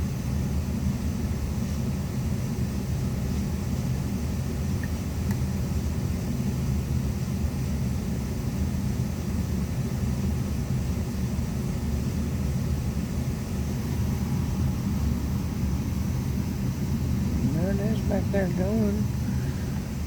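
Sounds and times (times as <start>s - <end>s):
steady low rumble: 11.7s - 20.0s.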